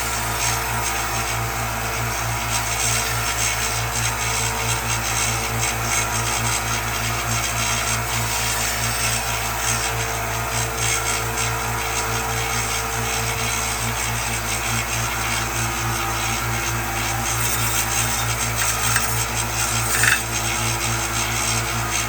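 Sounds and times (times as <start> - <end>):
power tool grinding wood: 16.5 - 20.6.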